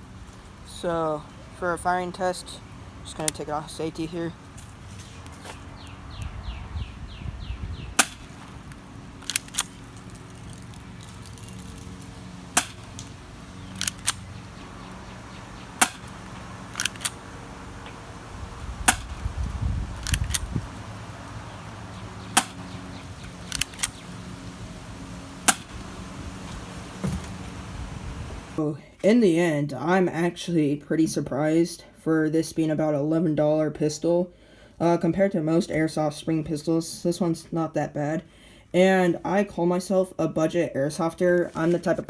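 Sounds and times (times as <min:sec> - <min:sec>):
quiet pistol clicks: 0:13.8 - 0:14.2, 0:23.5 - 0:24.0
airsoft pistol snap: 0:18.9 - 0:19.1.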